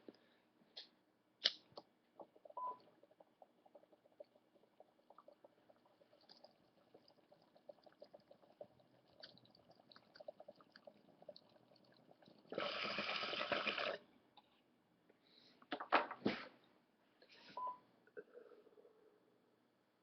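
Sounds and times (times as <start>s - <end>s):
water bubbling in a bong: 2.2s - 14.0s.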